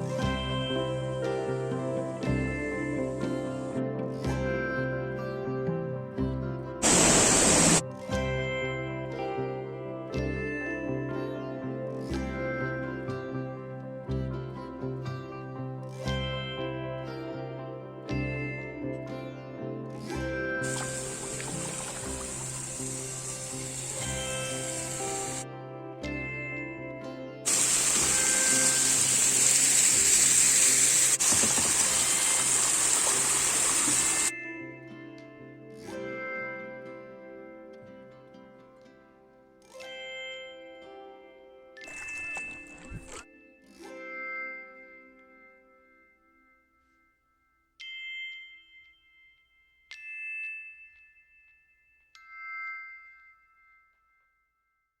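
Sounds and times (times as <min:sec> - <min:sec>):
gentle guitar music: 0:00.0 - 0:40.0
rushing hiss of water: 0:06.8 - 0:07.8, 0:20.6 - 0:25.4, 0:27.5 - 0:34.3
bell-like chime notes: 0:20.6 - 0:30.1, 0:32.4 - 0:37.5, 0:39.8 - 0:54.9.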